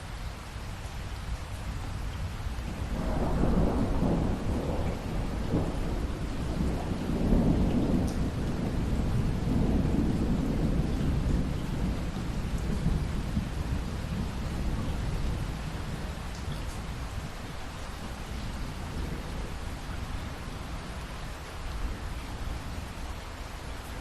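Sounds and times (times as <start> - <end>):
steady rain falling: 0.0 - 24.0
thunder rumbling: 2.7 - 21.0.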